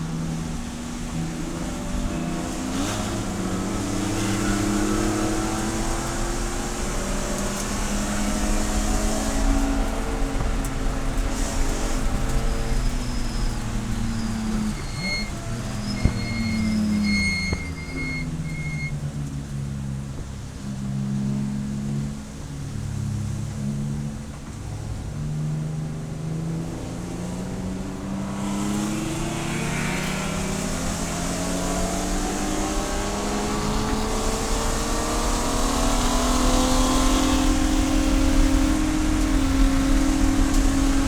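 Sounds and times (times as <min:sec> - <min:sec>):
race car engine revving: 0:00.0 - 0:20.3, 0:21.2 - 0:41.0.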